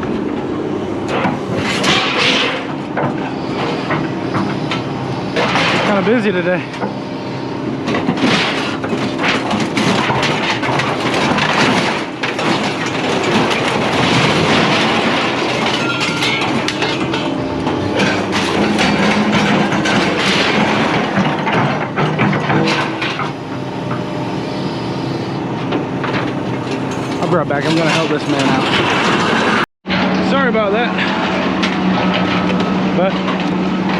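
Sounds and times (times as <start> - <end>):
scrap metal clattering: 1.1 - 4.0, 7.9 - 23.4, 26.1 - 33.9.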